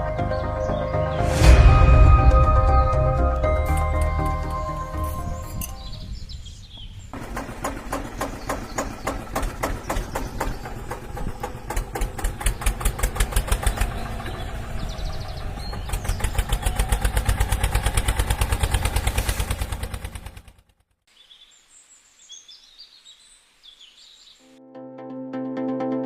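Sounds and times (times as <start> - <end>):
small engine chugging: 7.2 - 20.8.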